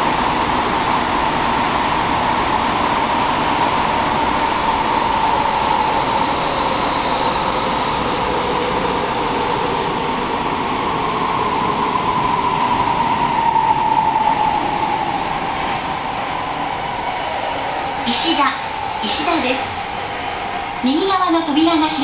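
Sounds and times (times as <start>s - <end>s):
subway train rumbling in tunnel: 0.0s - 22.0s.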